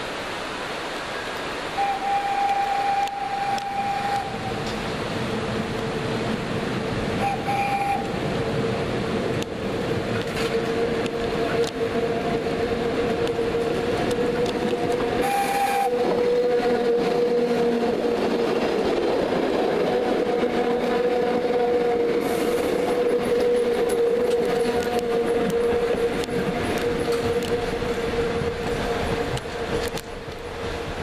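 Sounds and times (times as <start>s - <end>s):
train wheels rumbling on rails: 0.0s - 31.0s
electric train whine: 1.6s - 31.0s.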